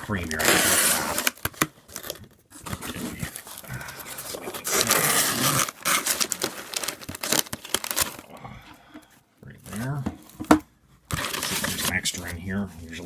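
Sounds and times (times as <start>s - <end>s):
packaging tearing and crinkling: 0.0s - 8.4s, 11.1s - 12.4s.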